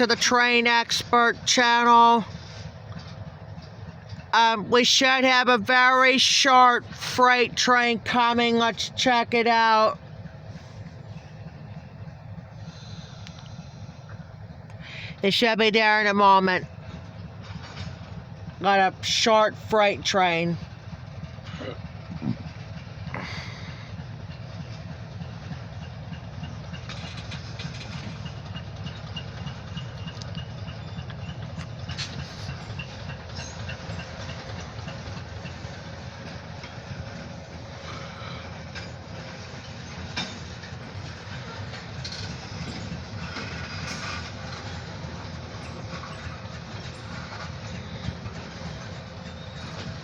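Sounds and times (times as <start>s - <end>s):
locomotive rumble: 0.0s - 50.0s
wheel clicks over rail joints: 23.9s - 50.0s.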